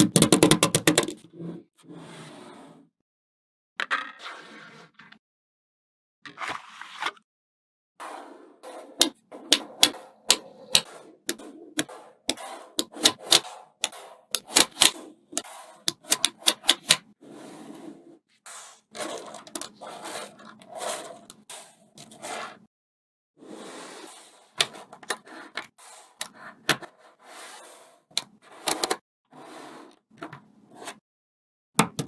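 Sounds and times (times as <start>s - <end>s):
magnetic balls scraping and rattling: 8.6s - 17.1s, 18.6s - 22.7s.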